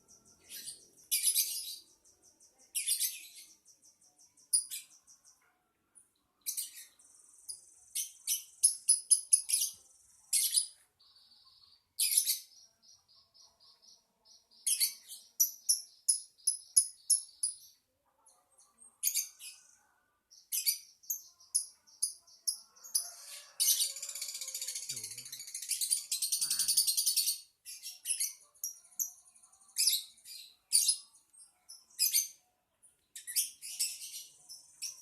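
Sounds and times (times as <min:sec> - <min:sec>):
buzzy bird trills: 0:23.6 - 0:27.4
bird chirping shrilly: 0:26.0 - 0:27.3.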